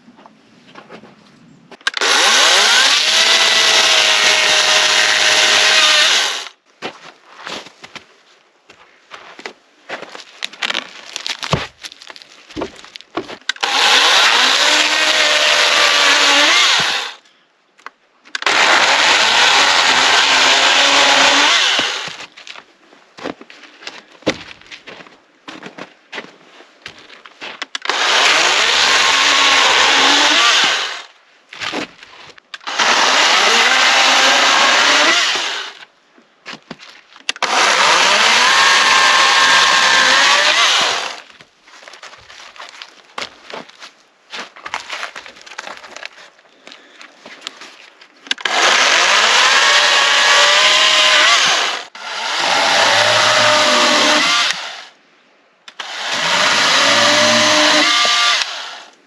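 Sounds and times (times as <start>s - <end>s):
power tool working wood: 1.9s - 6.5s, 13.6s - 17.2s, 18.4s - 22.2s, 27.8s - 31.1s, 32.6s - 35.8s, 37.4s - 41.2s, 48.4s - 54.9s, 55.8s - 58.9s.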